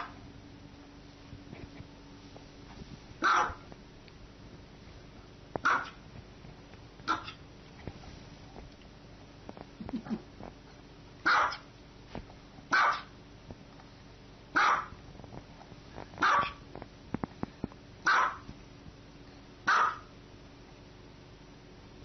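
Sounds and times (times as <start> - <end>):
small dog barking: 3.2 - 3.7, 5.6 - 6.0, 7.0 - 7.4, 11.2 - 11.7, 12.7 - 13.2, 14.5 - 15.0, 16.2 - 16.6, 18.0 - 18.5, 19.6 - 20.1.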